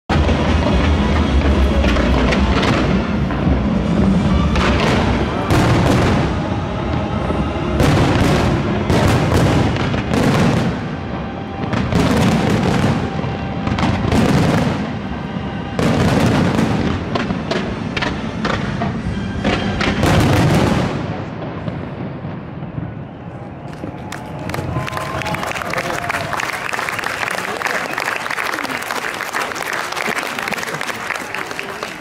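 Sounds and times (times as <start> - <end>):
music: 0.1 - 20.8
firework bursts: 0.1 - 22.0
crackling firework trails: 0.1 - 32.0.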